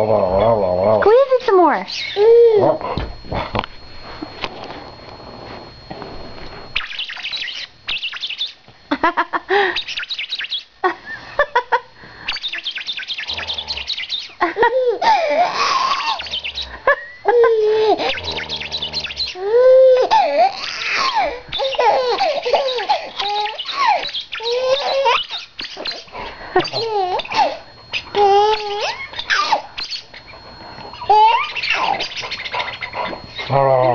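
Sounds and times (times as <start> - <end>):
baby laughing and squealing: 14.4 - 30.2, 31.0 - 33.5.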